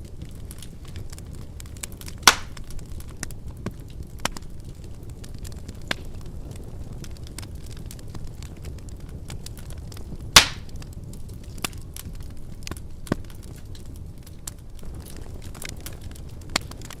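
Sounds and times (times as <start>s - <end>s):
fireplace flames: 0.0s - 17.0s
loud fire pops: 0.0s - 17.0s
small fire crackles: 0.0s - 17.0s.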